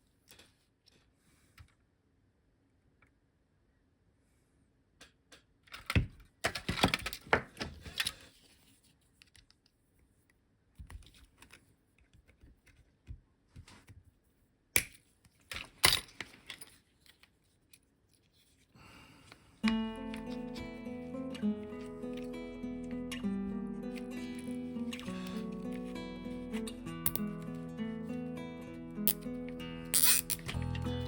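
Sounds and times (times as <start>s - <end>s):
small parts and tools clicking: 27.0s - 27.3s, 29.9s - 30.6s.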